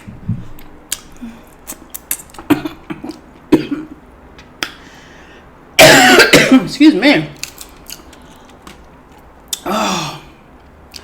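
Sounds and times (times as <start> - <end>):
loud cough: 2.5 - 4.0, 5.8 - 6.7.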